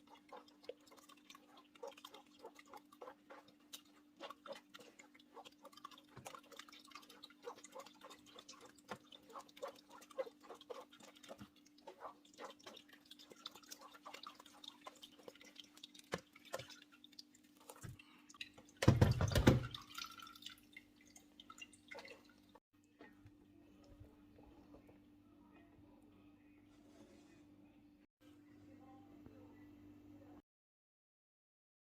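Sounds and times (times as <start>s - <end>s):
liquid dripping: 0.0s - 23.2s.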